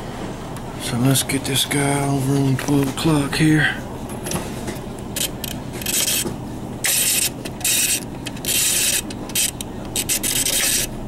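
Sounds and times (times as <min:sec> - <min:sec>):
steady low hum: 0:00.0 - 0:11.0
timer dial rasping: 0:05.2 - 0:06.2, 0:06.8 - 0:10.9.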